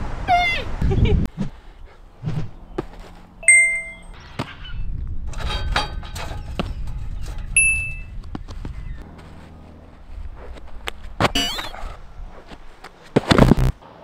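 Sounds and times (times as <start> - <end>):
bright ding chimes: 3.4 - 4.1.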